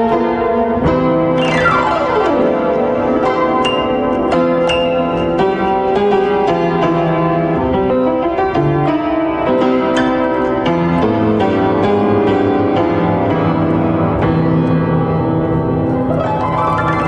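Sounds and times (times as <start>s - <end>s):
piano chords and melody: 0.7s - 17.0s.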